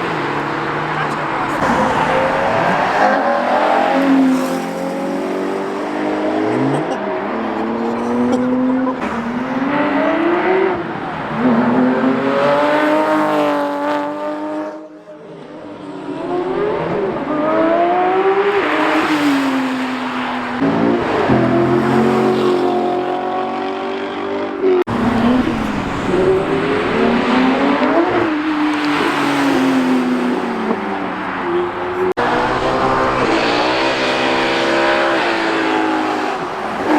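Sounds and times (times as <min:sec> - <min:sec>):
car engines revving and accelerating: 0:00.0 - 0:36.9.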